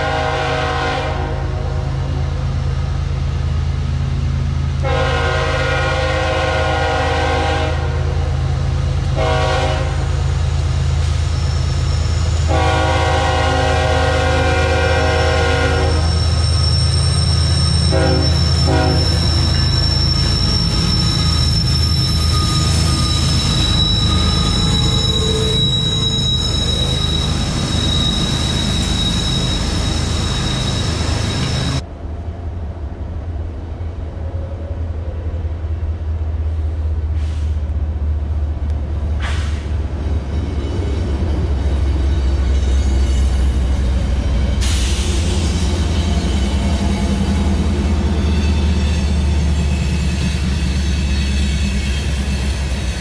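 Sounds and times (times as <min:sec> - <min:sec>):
heavy train rumble: 0:00.0 - 0:53.0
train wheels rolling on rails: 0:02.3 - 0:33.9, 0:36.3 - 0:53.0
high-pitched wheel squeal: 0:11.0 - 0:12.6, 0:14.9 - 0:31.8, 0:39.6 - 0:53.0.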